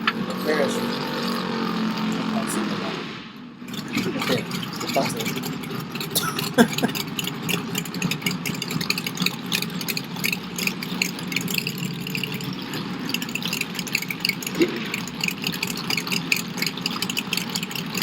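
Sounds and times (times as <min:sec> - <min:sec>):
car engine running: 0:03.6 - 0:18.0
clatter of sharp ticks: 0:03.7 - 0:18.0.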